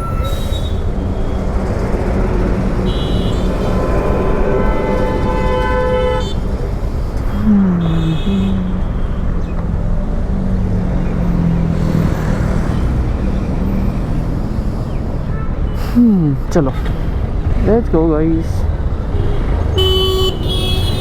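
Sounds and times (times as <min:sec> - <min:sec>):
drone of engines and road noise: 0:00.0 - 0:21.0
vehicle horn: 0:02.8 - 0:06.8, 0:19.1 - 0:21.0.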